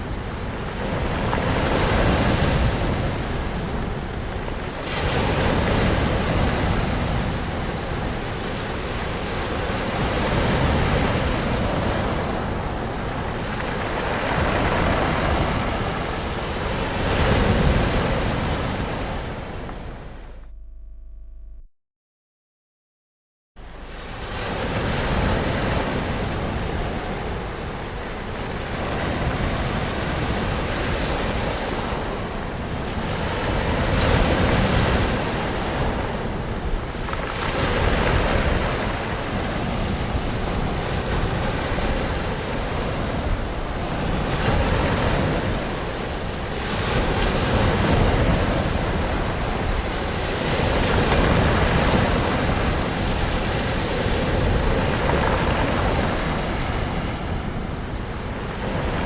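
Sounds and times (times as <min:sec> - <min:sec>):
ocean waves washing in: 0:04.7 - 0:20.3.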